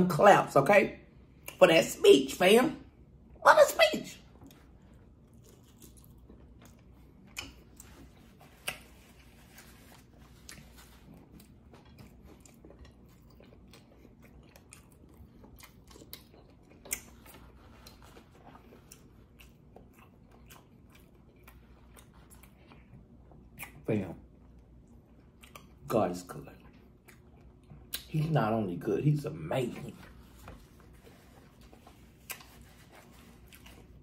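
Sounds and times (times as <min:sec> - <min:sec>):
close-up chewing: 0:04.3 - 0:23.9, 0:26.5 - 0:28.2, 0:29.7 - 0:34.0.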